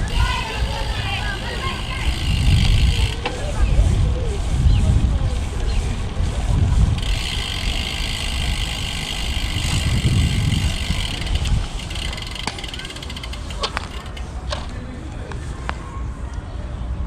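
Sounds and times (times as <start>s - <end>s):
bicycle freewheel ticking: 0.0s - 3.7s, 6.8s - 14.7s
wind: 0.0s - 17.0s
sharp clicks and knocks: 11.2s - 14.8s.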